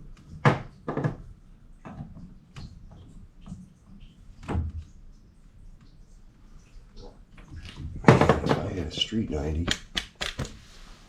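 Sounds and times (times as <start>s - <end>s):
hard objects knocking and clicking: 9.7s - 10.6s.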